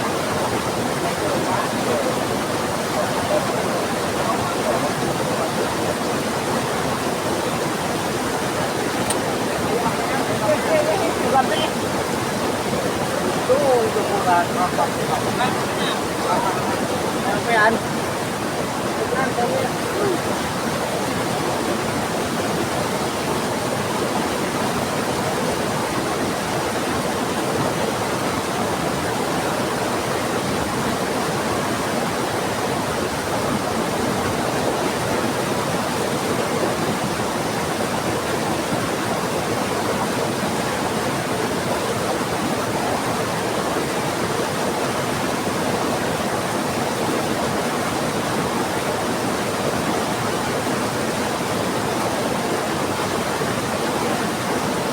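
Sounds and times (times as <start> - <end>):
fast-flowing river rushing: 0.0 - 54.9
heavy rain: 0.0 - 54.9.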